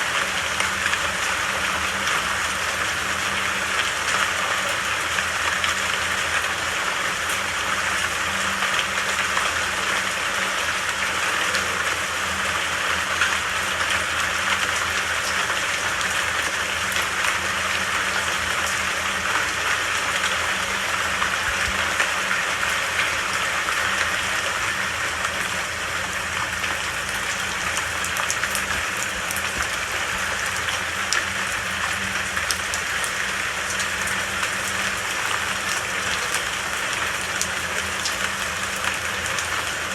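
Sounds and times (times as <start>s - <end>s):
rain hissing in forest: 0.0s - 39.9s.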